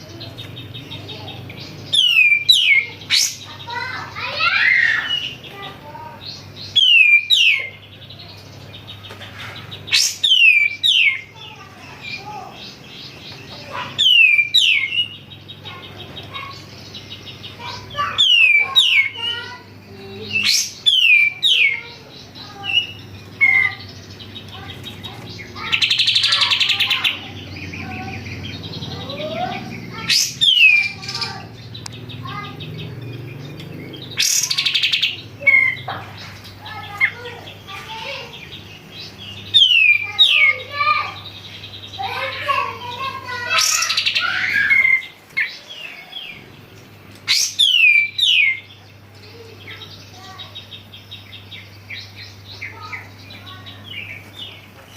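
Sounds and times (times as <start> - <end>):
bird harsh buzzing chatter: 0.0 - 54.9
bulbul whistling song: 1.1 - 3.4, 6.6 - 7.8, 9.9 - 11.3, 13.7 - 15.3, 20.3 - 21.8, 29.2 - 32.0, 39.4 - 40.7, 47.3 - 48.8.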